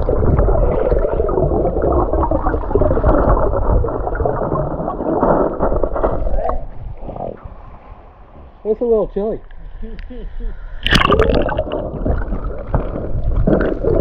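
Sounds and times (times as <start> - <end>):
underwater gurgling and churning: 0.0 - 8.4, 10.5 - 14.0.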